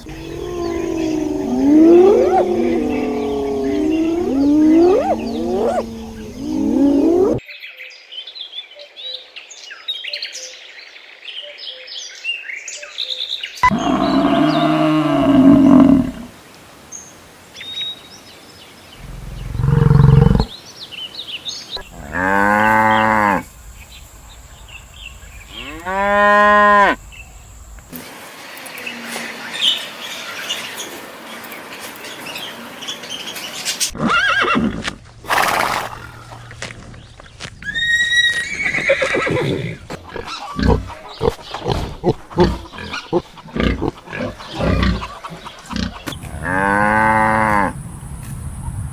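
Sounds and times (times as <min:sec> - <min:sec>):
animal calls: 0:00.0 - 0:07.4, 0:13.6 - 0:16.3, 0:19.0 - 0:20.5, 0:37.6 - 0:47.8.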